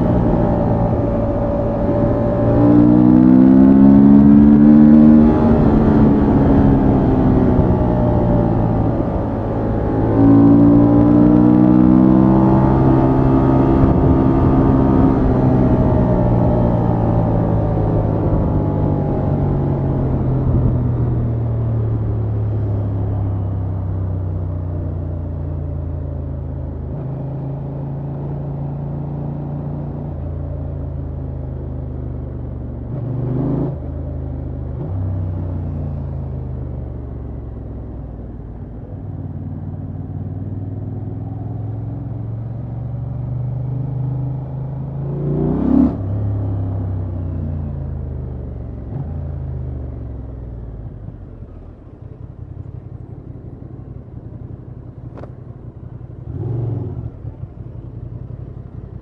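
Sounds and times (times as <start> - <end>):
motorcycle engine running: 46.3 - 59.0.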